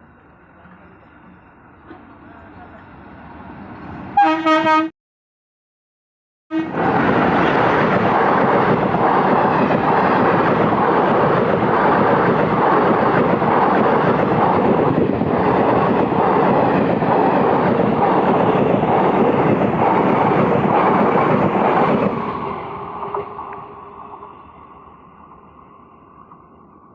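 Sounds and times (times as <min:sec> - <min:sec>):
train wheels rushing on rails: 0:06.6 - 0:26.6.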